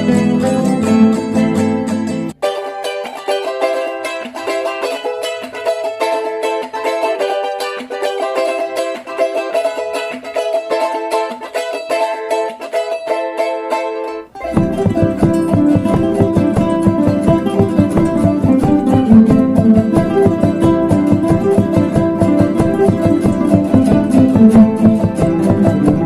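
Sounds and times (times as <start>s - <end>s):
plucked string instrument melody: 0.0s - 26.0s
low accompaniment: 14.3s - 26.0s.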